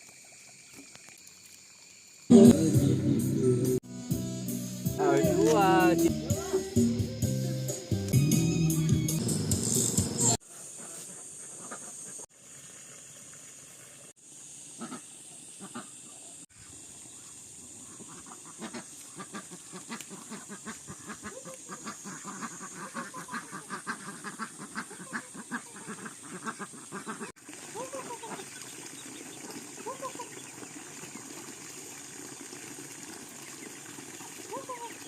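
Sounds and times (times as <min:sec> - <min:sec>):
faint hiss: 0:10.5 - 0:22.9
farm animals calling: 0:17.9 - 0:28.7.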